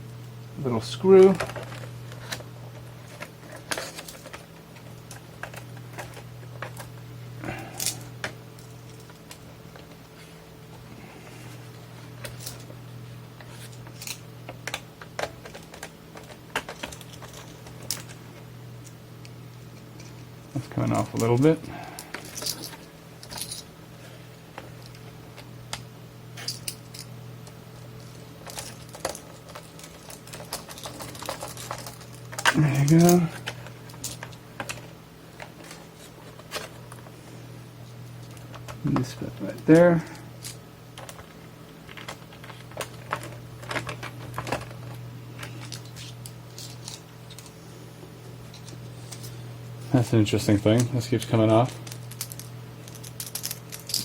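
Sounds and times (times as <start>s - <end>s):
steady low hum: 0.0s - 54.0s
clicks of small parts being handled: 13.4s - 18.2s, 26.4s - 37.1s, 38.1s - 47.6s, 50.8s - 54.0s.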